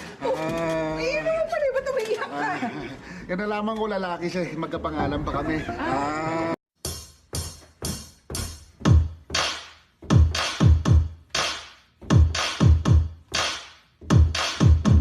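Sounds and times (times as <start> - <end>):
drum machine kicks: 6.8 - 15.0
snare or clap hits: 8.9 - 15.0.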